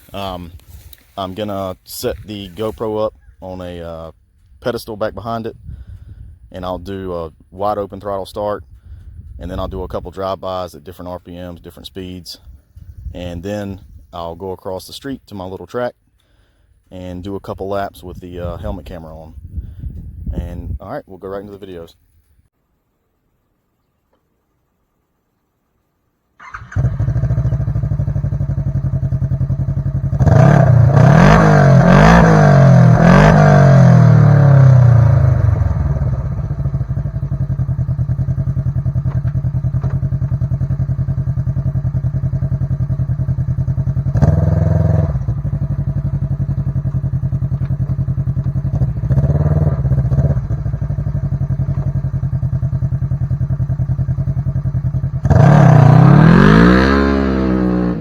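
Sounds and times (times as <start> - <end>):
engine idling and revving: 26.5 - 58.0.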